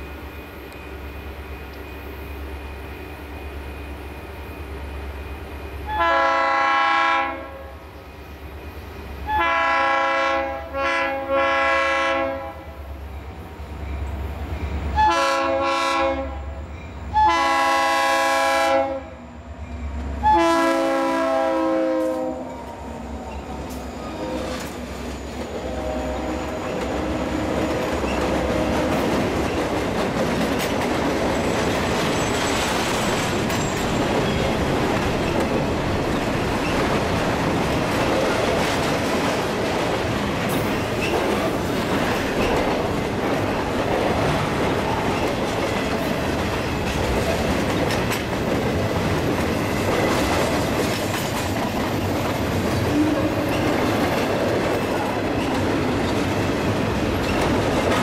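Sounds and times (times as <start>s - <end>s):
freight train rumbling past: 0.0s - 58.0s
diesel locomotive horn blasts: 5.9s - 7.8s, 9.3s - 12.8s, 15.0s - 19.2s, 20.2s - 23.3s, 23.9s - 24.8s, 25.4s - 29.1s
wheels clacking on rails: 22.0s - 58.0s.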